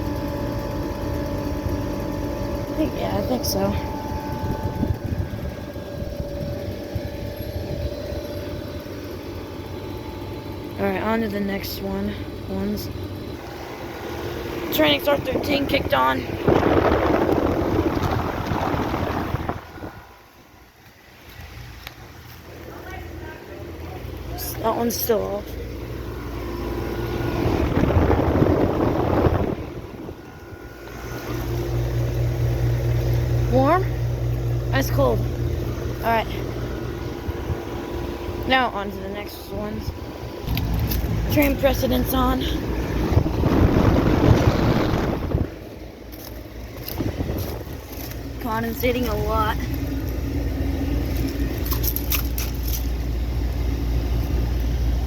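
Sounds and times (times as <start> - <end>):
steady tone: 0.0 - 20.8
air conditioner fan and compressor hum: 0.0 - 55.0.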